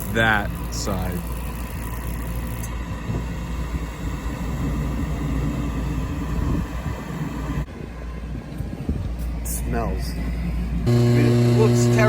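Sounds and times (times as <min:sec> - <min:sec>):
faint steady hum: 0:00.0 - 0:08.8
hvac equipment rumbling: 0:00.0 - 0:12.0.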